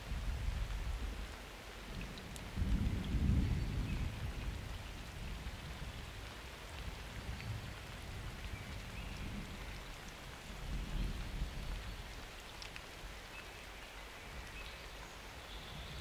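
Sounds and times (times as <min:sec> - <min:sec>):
rain falling: 0:00.0 - 0:16.0
raindrops ticking: 0:00.0 - 0:16.0
low thunder rumble: 0:01.9 - 0:12.2.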